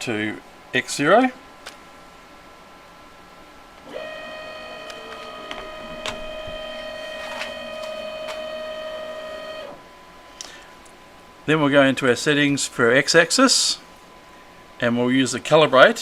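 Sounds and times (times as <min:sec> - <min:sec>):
stepper motor whine: 0:03.8 - 0:10.0.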